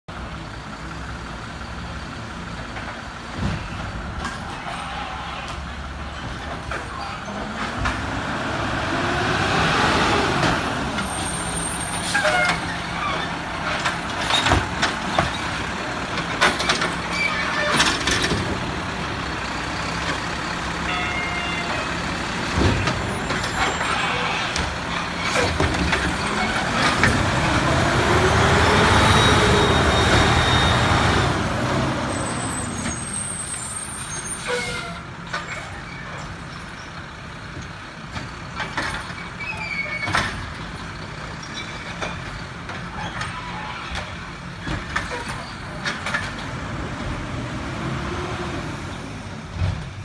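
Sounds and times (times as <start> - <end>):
garbage truck engine: 0.1 - 50.0
high squeal: 10.7 - 15.6, 16.7 - 18.4, 20.8 - 31.5, 32.1 - 36.9, 39.2 - 40.4
clanks and knocks: 12.2 - 18.9, 22.4 - 27.7.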